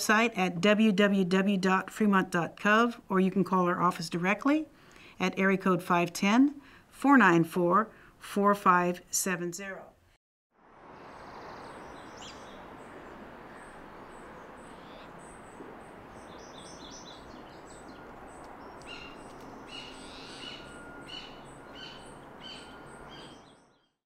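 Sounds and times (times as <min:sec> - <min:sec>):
small birds chirping: 0:11.0 - 0:24.0.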